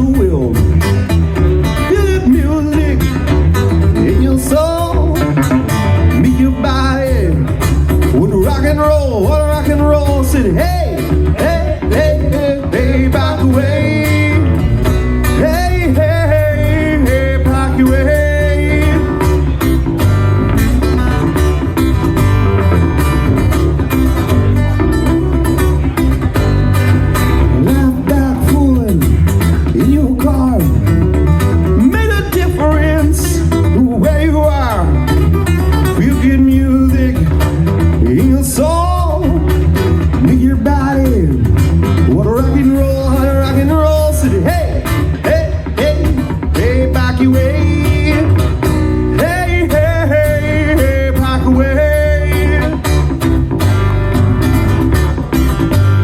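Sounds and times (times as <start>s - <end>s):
bass and drum beat: 0.0s - 56.0s
guitar: 0.0s - 56.0s
person singing: 3.9s - 19.6s, 27.5s - 31.0s, 31.6s - 41.4s, 42.1s - 53.1s.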